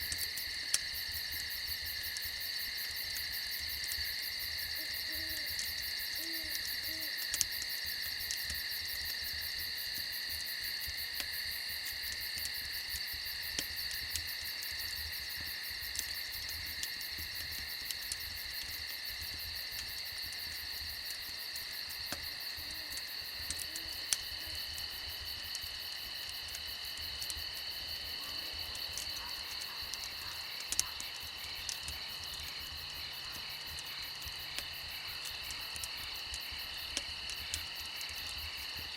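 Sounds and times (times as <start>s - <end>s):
campfire crackling and popping: 0.0s - 38.9s
crickets and night insects: 0.0s - 38.9s
owl hooting: 6.2s - 7.1s.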